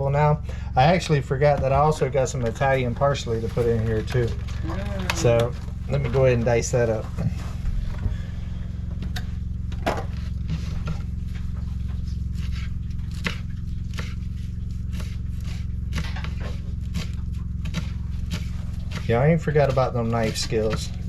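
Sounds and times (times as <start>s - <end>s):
steady low hum: 0.0s - 21.0s
knife chopping on cutting board: 12.4s - 14.2s, 14.9s - 21.0s.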